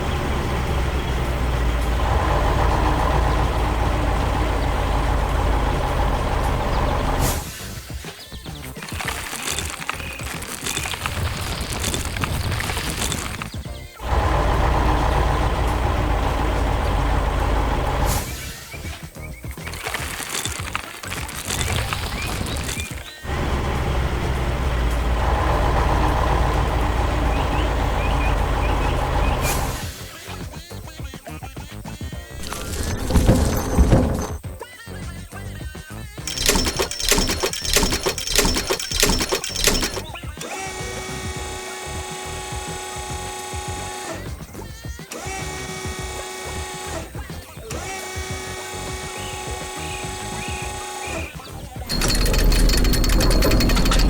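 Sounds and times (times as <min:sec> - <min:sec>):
heavy truck engine running: 0:00.0 - 0:07.8, 0:09.4 - 0:18.9, 0:21.4 - 0:30.0, 0:51.8 - 0:54.0.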